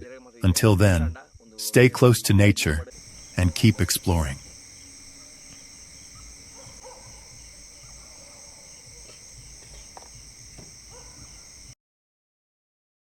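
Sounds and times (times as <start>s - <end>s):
crickets trilling: 2.9s - 11.8s
faint short low calls: 3.0s - 11.8s.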